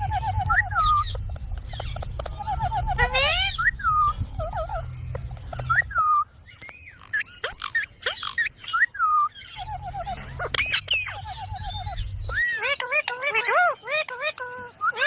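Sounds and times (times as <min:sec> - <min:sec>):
parrot whistling and chirping: 0:00.0 - 0:15.0
low rumble: 0:09.6 - 0:12.5.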